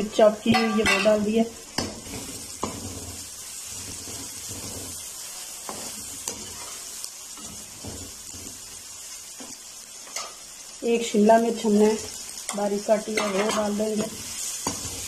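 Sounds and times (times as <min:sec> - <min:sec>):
onion sizzling in hot oil: 0:00.0 - 0:15.0
metal spoon scraping pan: 0:00.5 - 0:08.7.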